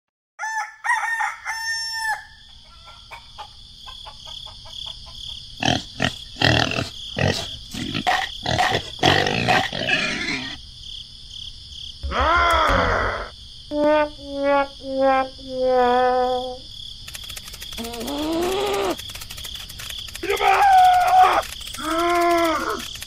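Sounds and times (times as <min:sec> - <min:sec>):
short pitched animal calls: 0:12.0 - 0:13.3
loud rough animal calls: 0:12.0 - 0:13.4.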